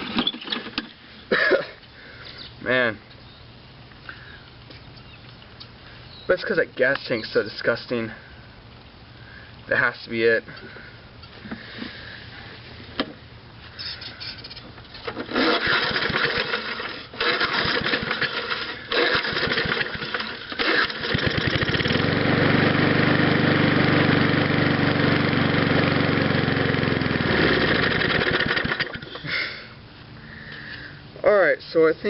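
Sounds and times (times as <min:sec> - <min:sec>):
small engine cranking and sputtering: 0:13.9 - 0:29.3
recoil starter pull: 0:15.0 - 0:23.3, 0:24.2 - 0:29.2
small engine running steadily: 0:15.1 - 0:31.0.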